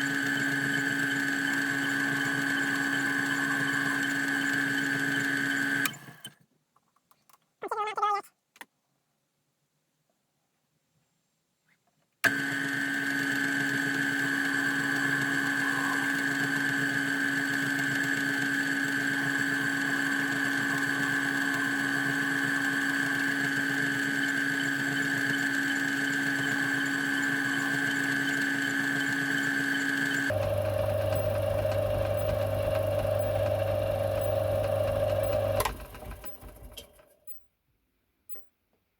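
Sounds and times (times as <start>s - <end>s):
metalworking lathe running: 0.0s - 5.9s, 12.3s - 36.8s.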